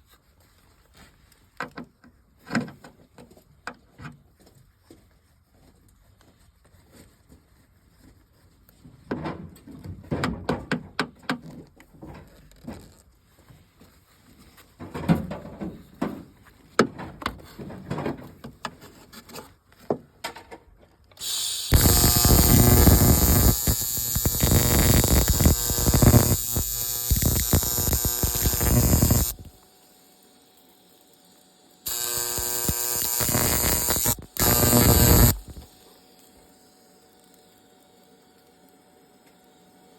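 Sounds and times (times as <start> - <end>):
welder arc crackling: 21.2 - 29.6, 31.9 - 35.7.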